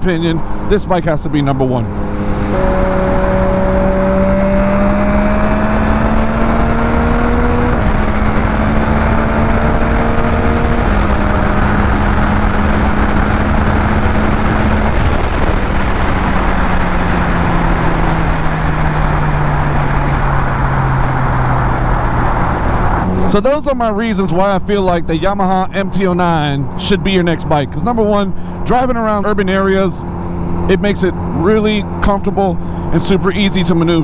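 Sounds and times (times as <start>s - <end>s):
motorcycle engine pulling hard: 1.7s - 23.4s
wind rush on microphone: 1.9s - 23.4s.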